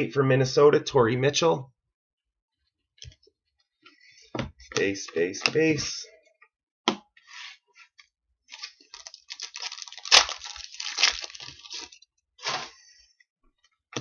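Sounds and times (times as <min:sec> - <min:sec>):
cards and packaging rustling: 0:08.5 - 0:12.6.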